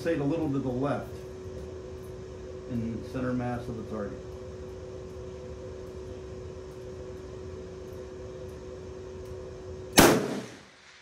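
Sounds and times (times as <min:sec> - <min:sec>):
generator humming: 0:00.0 - 0:10.7
rifle shot: 0:10.0 - 0:11.0.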